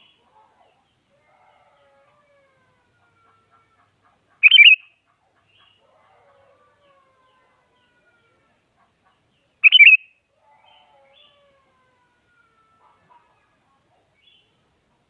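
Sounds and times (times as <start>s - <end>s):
bulbul chattering song: 4.4s - 5.8s, 9.6s - 10.1s.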